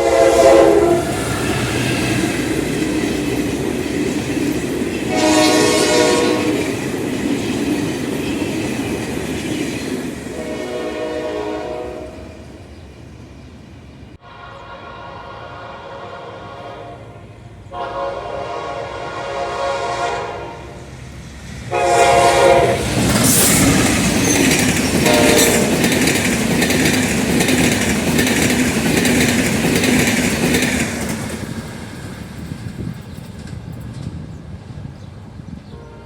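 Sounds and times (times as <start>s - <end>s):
locomotive horn blasts: 0.0s - 1.2s, 5.1s - 6.7s, 10.4s - 12.4s, 14.2s - 20.8s, 21.7s - 22.9s, 25.0s - 25.8s, 35.7s - 36.0s
train passing close: 0.0s - 36.0s.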